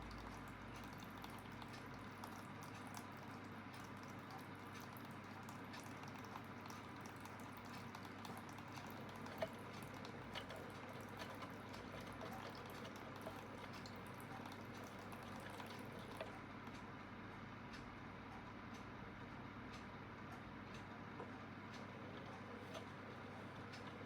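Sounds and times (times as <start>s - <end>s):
water trickling and dripping: 0.0s - 16.4s.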